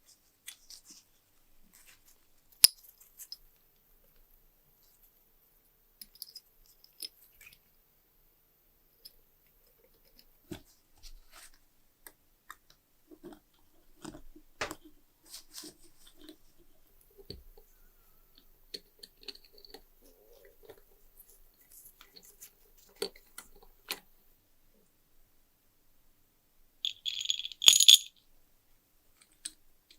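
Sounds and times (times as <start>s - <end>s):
light clicks of small parts: 6.0s - 7.7s.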